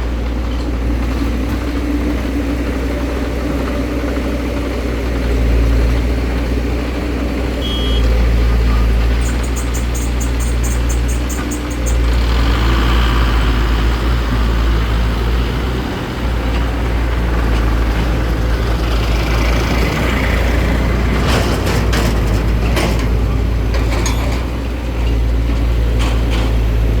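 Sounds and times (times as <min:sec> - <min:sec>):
diesel engine running under load: 0:00.0 - 0:27.0
sharp knocks and rattles: 0:20.0 - 0:27.0.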